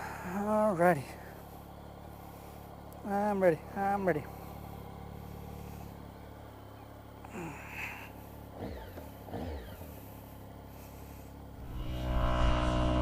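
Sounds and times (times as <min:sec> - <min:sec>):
motorcycle engine idling: 0:00.0 - 0:13.0
droning music: 0:11.5 - 0:13.0
rising and falling cries: 0:11.6 - 0:13.0.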